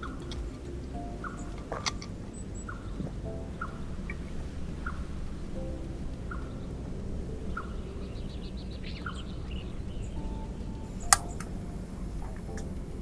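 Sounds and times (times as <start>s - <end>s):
birds chirping: 0.0s - 13.0s
steady low rumble: 0.0s - 13.0s
sharp click: 11.0s - 11.6s.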